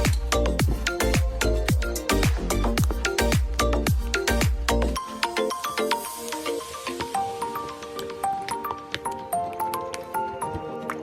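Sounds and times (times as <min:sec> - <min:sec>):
upbeat music: 0:00.0 - 0:11.0
deep kick drum: 0:00.1 - 0:04.7.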